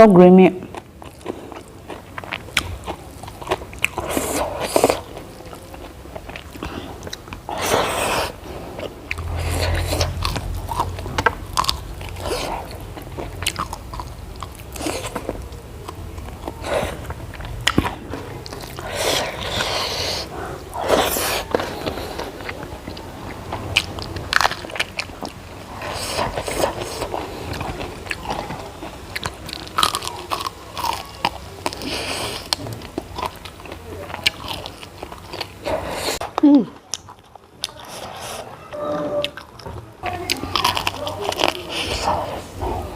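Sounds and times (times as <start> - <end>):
biting crunching and chewing food: 0.7 - 38.4, 39.2 - 42.9.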